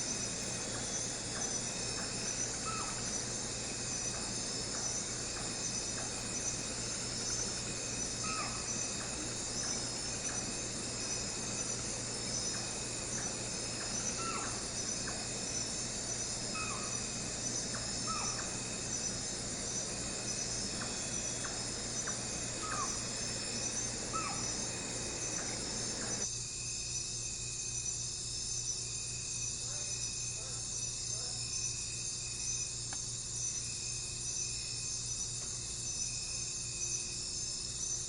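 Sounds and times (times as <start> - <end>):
insects chirping: 0.0 - 38.0
short bird calls: 2.4 - 3.3, 7.3 - 10.4, 12.3 - 26.2.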